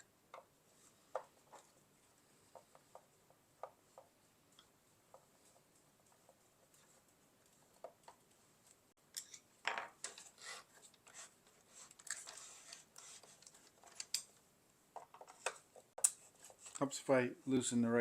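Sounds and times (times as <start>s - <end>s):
plastic parts clicking and tapping: 13.3s - 14.4s.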